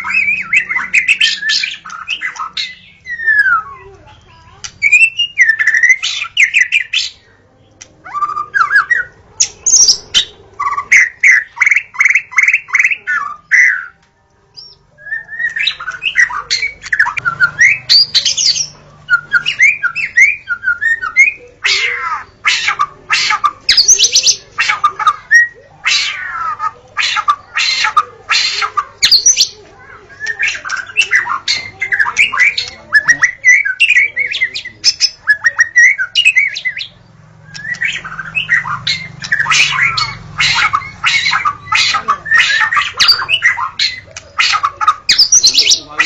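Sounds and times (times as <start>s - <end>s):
bird singing whistled phrases: 0.0s - 3.9s, 4.8s - 7.2s, 14.6s - 25.6s, 27.1s - 46.0s.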